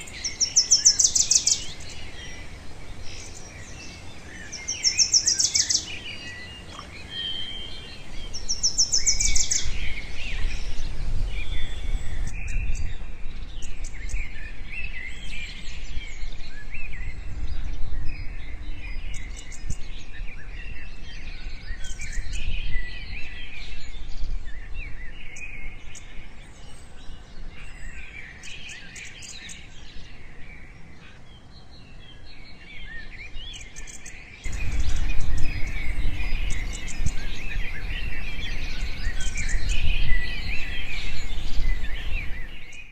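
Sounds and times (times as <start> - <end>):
small birds chirping and trilling: 0.0 - 42.9.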